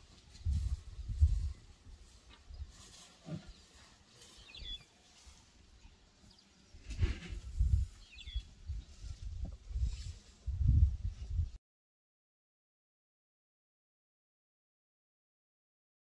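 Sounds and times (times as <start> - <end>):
bird chirps: 4.3 - 4.9, 8.0 - 8.5.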